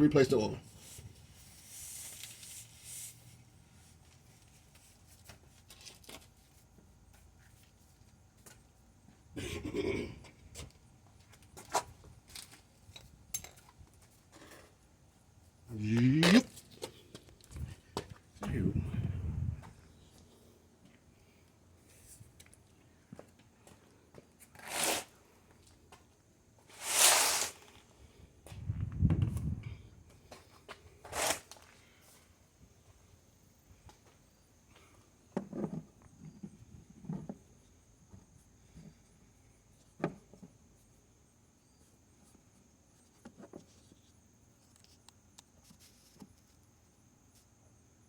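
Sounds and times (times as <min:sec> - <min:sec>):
rustling or scraping handling noise: 0:00.6 - 0:08.0, 0:24.4 - 0:25.1, 0:26.6 - 0:27.9, 0:30.4 - 0:31.7.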